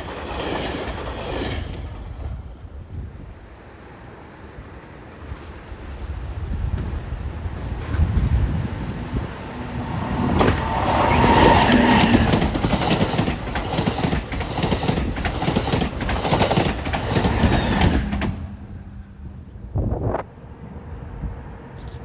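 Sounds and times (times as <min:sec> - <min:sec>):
low rumble of passing train: 0:00.0 - 0:22.0
train wheels clacking over rail joints: 0:10.0 - 0:18.7.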